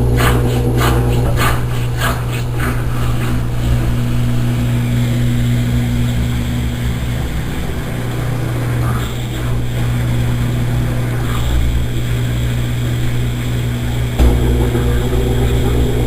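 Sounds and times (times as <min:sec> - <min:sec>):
washing machine motor hum: 0:00.0 - 0:16.0.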